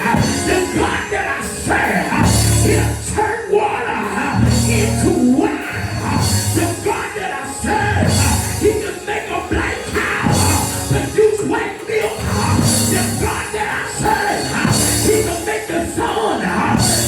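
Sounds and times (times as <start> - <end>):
live band playing praise music: 0.0 - 17.0.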